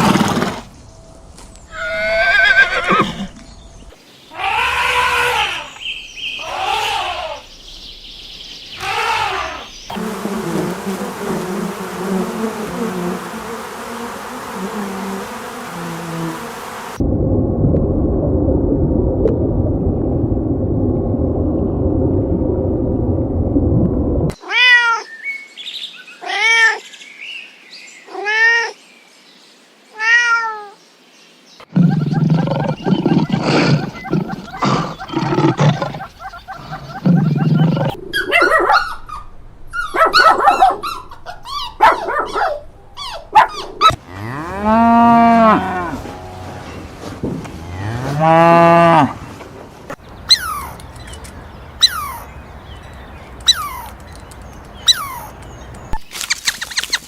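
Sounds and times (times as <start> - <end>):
low animal calls: 6.4 - 7.5, 31.7 - 46.8
hiss with low buzzing: 9.2 - 17.0
low rough animal noise: 31.7 - 40.0
arched pitched animal calls: 31.7 - 44.0, 50.3 - 50.8, 51.8 - 52.3.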